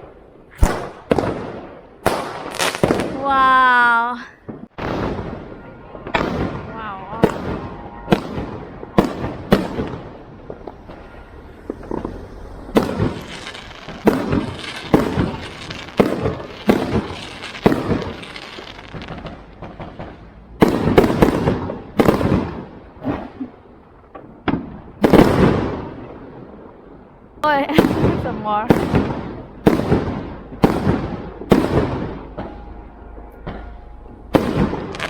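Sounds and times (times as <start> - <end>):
fireworks bangs: 0.0 - 35.0.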